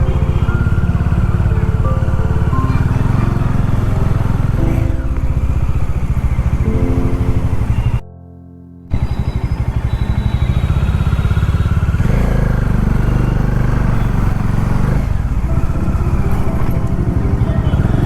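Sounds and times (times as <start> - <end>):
motorcycle engine running: 0.0 - 8.0, 8.9 - 18.0.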